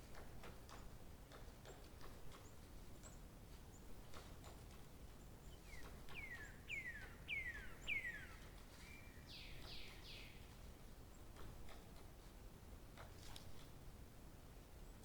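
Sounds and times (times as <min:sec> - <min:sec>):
outdoor background noise: 0:00.0 - 0:15.0
bird whistling song: 0:05.6 - 0:10.4.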